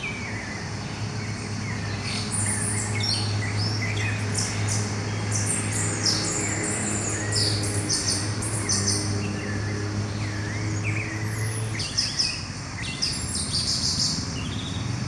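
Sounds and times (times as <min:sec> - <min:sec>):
birds singing and chirping: 0:00.0 - 0:15.0.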